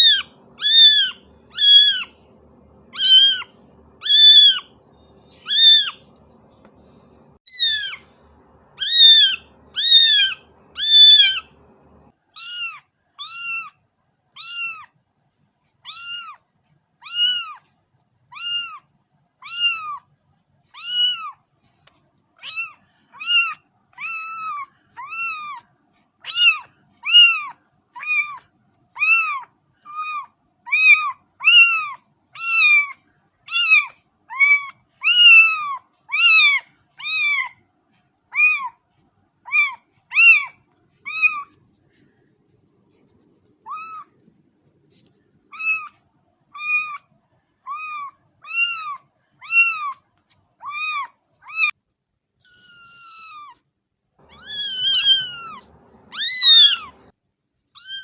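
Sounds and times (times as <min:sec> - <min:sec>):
cat meowing: 0:00.0 - 0:06.2, 0:07.1 - 0:08.2, 0:08.8 - 0:13.8, 0:14.4 - 0:14.9, 0:15.8 - 0:16.4, 0:17.0 - 0:17.6, 0:18.3 - 0:18.8, 0:19.4 - 0:20.0, 0:20.8 - 0:21.4, 0:22.4 - 0:25.6, 0:26.2 - 0:28.4, 0:29.0 - 0:37.6, 0:38.3 - 0:38.8, 0:39.5 - 0:41.6, 0:43.6 - 0:44.2, 0:45.5 - 0:46.0, 0:46.6 - 0:47.0, 0:47.7 - 0:50.0, 0:50.6 - 0:51.8, 0:52.4 - 0:53.6, 0:54.2 - 0:57.1, 0:57.7 - 0:58.0.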